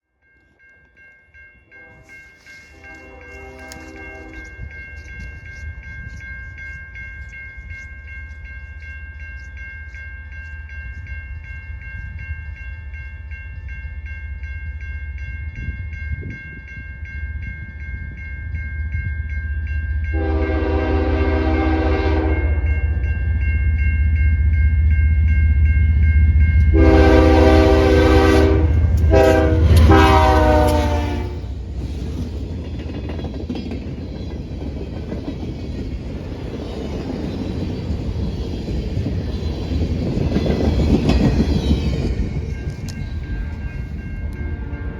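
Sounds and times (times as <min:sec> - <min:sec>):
crossing bell ringing: 0:00.1 - 0:44.9
train air horn blasts: 0:01.7 - 0:04.6, 0:20.1 - 0:22.8, 0:26.7 - 0:31.6.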